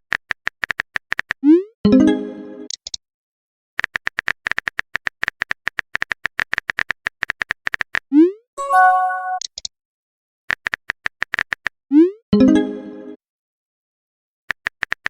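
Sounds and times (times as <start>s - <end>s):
rapid typing clicks: 0.1s - 1.4s, 3.8s - 8.0s, 14.5s - 15.0s
brief chime: 8.6s - 9.4s.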